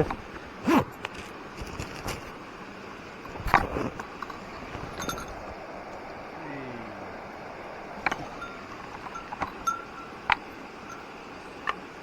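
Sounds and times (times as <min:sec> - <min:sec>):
handling knocks and scrapes: 0:00.0 - 0:02.4, 0:03.2 - 0:05.6, 0:08.0 - 0:11.0
mountain stream rushing: 0:00.0 - 0:12.0.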